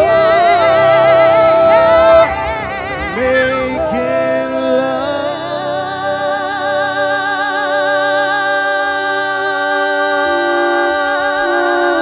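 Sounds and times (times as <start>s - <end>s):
held accompaniment notes: 0.0s - 12.0s
person singing long vibrato note: 0.0s - 12.0s.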